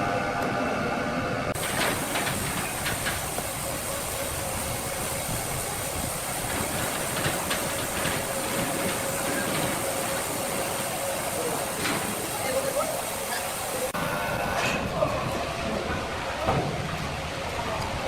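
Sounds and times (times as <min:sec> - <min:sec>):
machinery clatter and knocks: 0:01.5 - 0:03.9, 0:06.4 - 0:10.7, 0:11.7 - 0:12.4
machinery hiss: 0:01.6 - 0:14.3.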